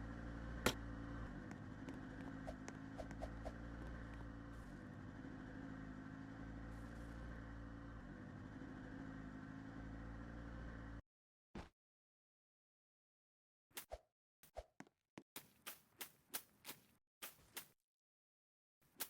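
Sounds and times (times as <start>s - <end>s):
boat engine running: 0.0s - 10.8s.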